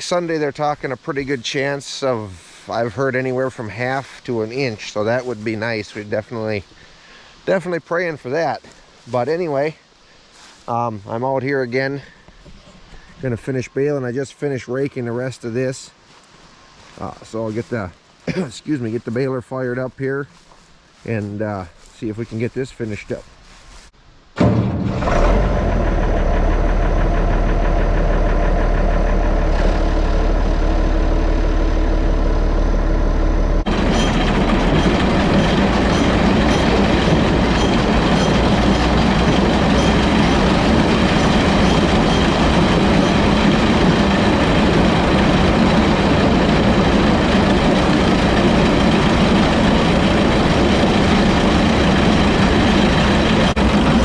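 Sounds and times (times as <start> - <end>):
tractor diesel engine running: 24.4 - 54.0
mechanical clatter: 33.7 - 54.0.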